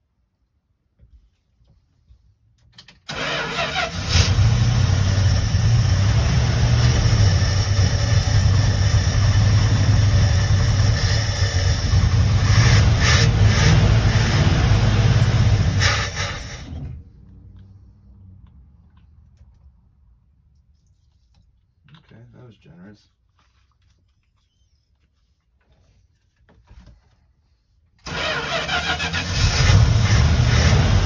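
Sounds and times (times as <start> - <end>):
engine starting and running: 2.8 - 19.7, 28.0 - 31.0
engine cranking: 3.0 - 6.2, 28.0 - 31.0.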